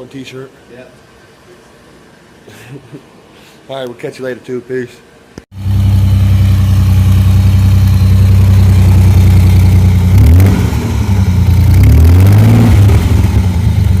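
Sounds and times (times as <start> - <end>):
car engine idling and revving: 5.6 - 14.0.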